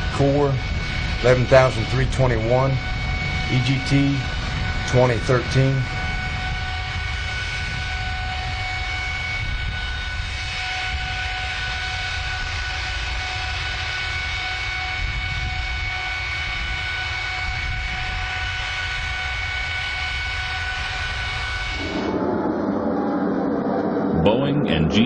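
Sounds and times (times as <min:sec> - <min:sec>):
high-pitched engine whine: 0:00.0 - 0:25.0
jet engine rumble and rush: 0:00.0 - 0:25.0.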